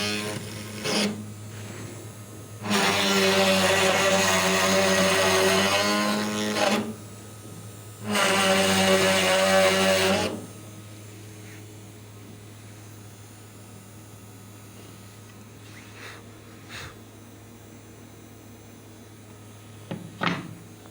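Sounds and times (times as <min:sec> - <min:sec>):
cnc router spindle drilling: 0:00.0 - 0:01.4, 0:02.5 - 0:07.1, 0:08.0 - 0:10.6.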